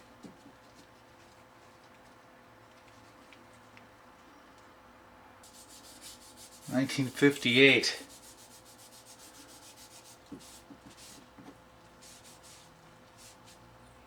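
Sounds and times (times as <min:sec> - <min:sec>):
wet sandpaper rubbing: 0:05.5 - 0:11.2
person speaking: 0:06.7 - 0:08.1.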